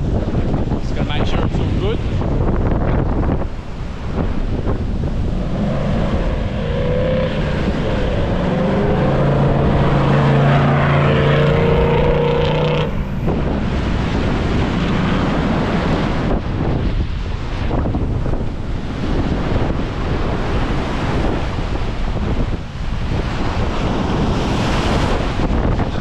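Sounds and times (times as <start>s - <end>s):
wind buffeting microphone: 0.0s - 26.0s
off-road vehicle engine: 3.4s - 16.5s.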